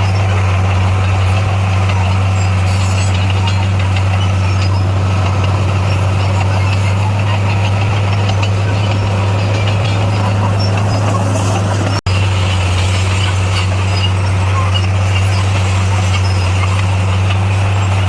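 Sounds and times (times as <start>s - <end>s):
bulldozer diesel engine droning: 0.0s - 18.0s.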